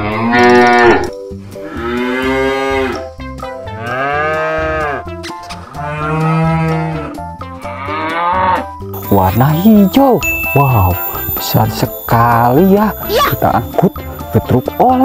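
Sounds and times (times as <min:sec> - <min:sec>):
cattle mooing: 0:00.0 - 0:01.1, 0:01.7 - 0:03.0, 0:03.8 - 0:05.1, 0:05.7 - 0:08.7.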